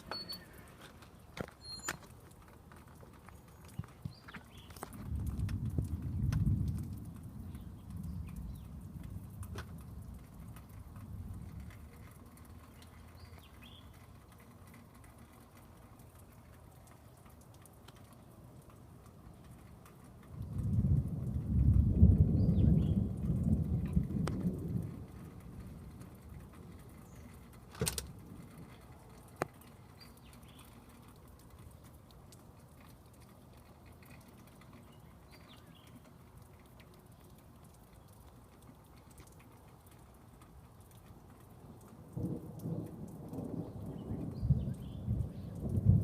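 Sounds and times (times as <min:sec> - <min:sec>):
faint steady rain: 0:00.0 - 0:46.0
thunder rumbling: 0:03.9 - 0:12.7, 0:20.3 - 0:28.8, 0:42.1 - 0:46.0.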